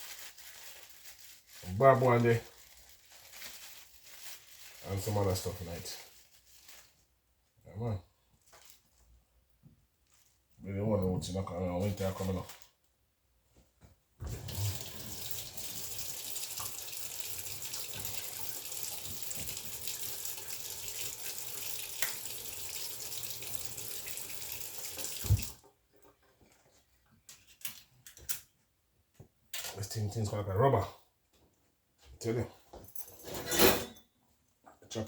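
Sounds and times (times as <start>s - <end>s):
tap water running into sink: 14.2s - 25.6s.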